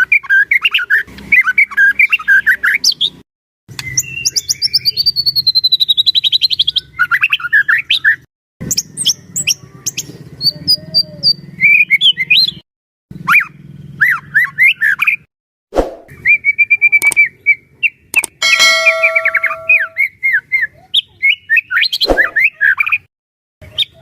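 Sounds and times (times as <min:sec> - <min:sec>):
songbird whistling and trilling: 0:03.8 - 0:08.1.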